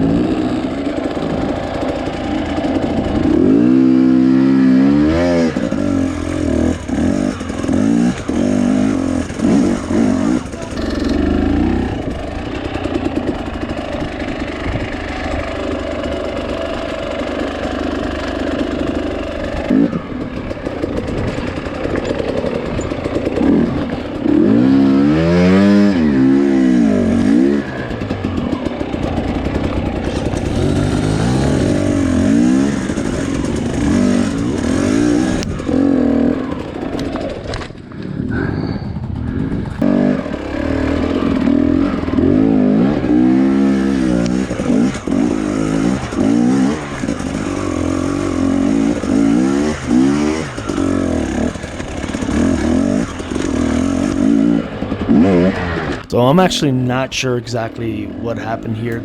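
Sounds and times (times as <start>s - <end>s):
dirt bike engine revving: 3.3s - 12.5s.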